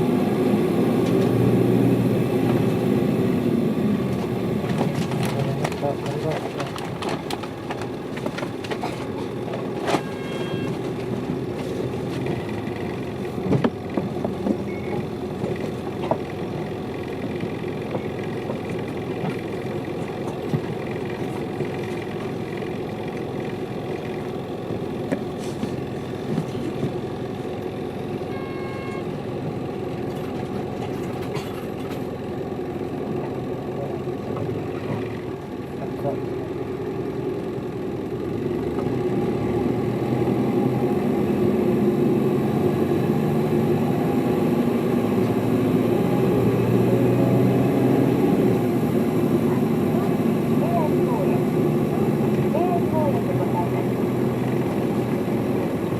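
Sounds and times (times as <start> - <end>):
bus diesel engine running: 0.0 - 55.9
rattles and clicks: 4.1 - 24.3, 25.0 - 27.0, 30.0 - 32.2
short electronic tone: 10.0 - 10.8, 28.3 - 29.1.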